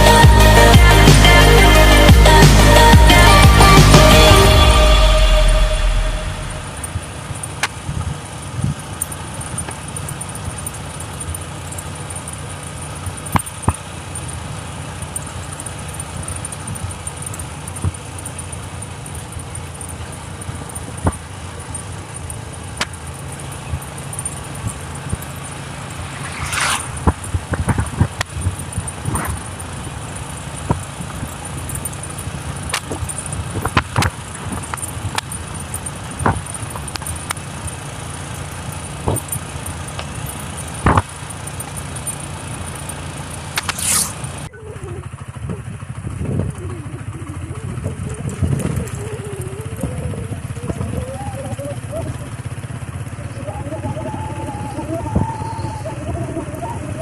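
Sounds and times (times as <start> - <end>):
motorcycle engine running: 0.0 - 57.0
road knocks and rattles: 6.4 - 57.0
short hiss: 43.6 - 44.2.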